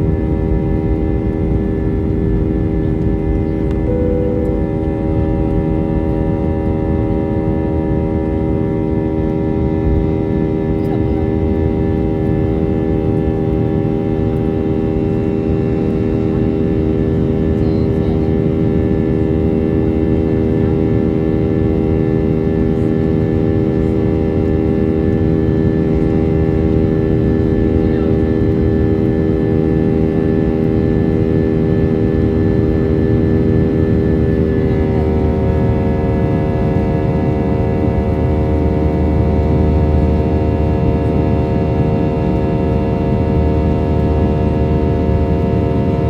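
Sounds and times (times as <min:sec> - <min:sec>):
airplane engines humming: 0:00.0 - 0:46.0.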